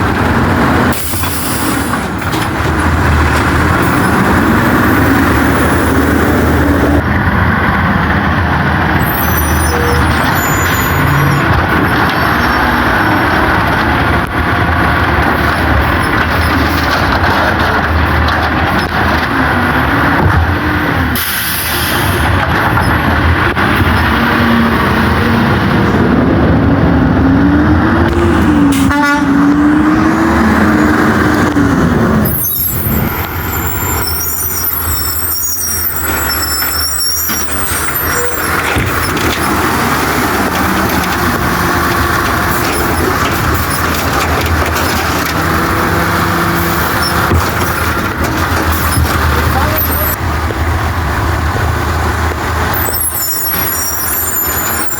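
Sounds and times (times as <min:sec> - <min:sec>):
garbage truck engine revving: 0:00.0 - 0:54.9
high squeals: 0:09.0 - 0:13.3, 0:32.2 - 0:44.0, 0:52.7 - 0:54.9.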